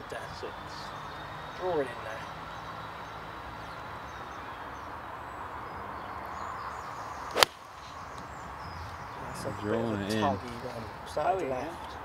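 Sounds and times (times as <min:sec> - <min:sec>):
outdoor background noise: 0:00.0 - 0:12.0
golf club striking ball: 0:07.3 - 0:07.6.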